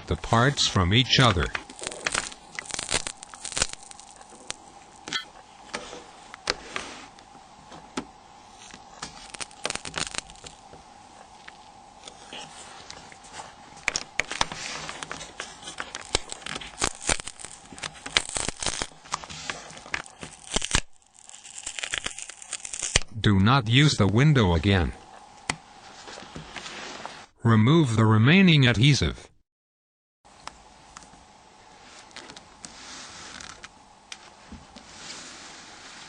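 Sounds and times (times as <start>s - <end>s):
faint steady hum: 0.0s - 29.3s, 30.3s - 36.0s
plastic crackling and clicks: 13.8s - 23.1s.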